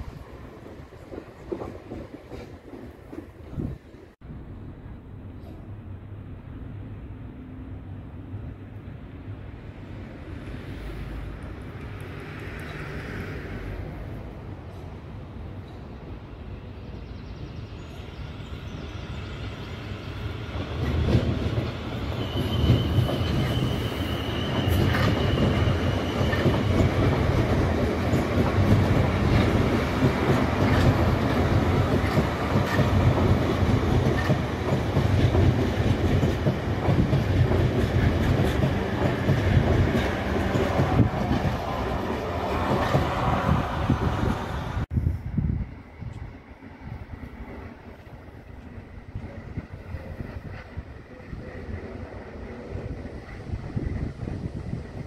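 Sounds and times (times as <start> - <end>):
electric train passing: 0.0 - 55.0
wheel squeal: 22.0 - 26.8.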